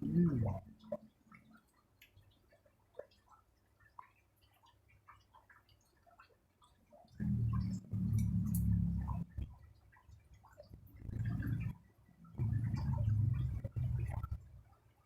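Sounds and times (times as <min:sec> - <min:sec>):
water drops plinking in tank: 0:00.0 - 0:14.7
loud low hum: 0:07.2 - 0:09.4.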